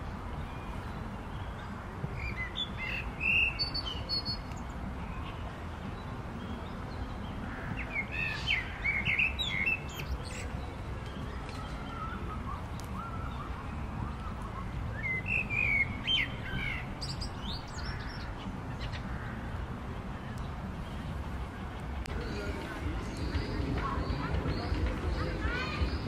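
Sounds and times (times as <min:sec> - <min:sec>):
birds chirping: 0:00.0 - 0:26.0
steady low rumble: 0:17.2 - 0:26.0.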